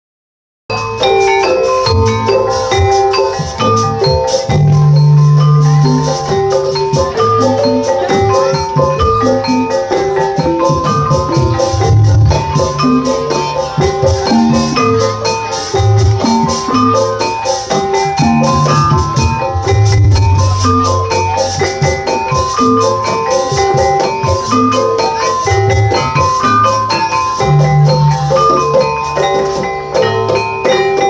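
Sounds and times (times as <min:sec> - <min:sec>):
gamelan music: 0:00.7 - 0:31.0.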